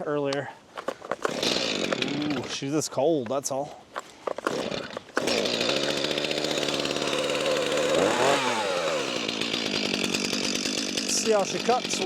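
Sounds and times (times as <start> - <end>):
chainsaw running: 1.1 - 2.7, 4.3 - 12.0.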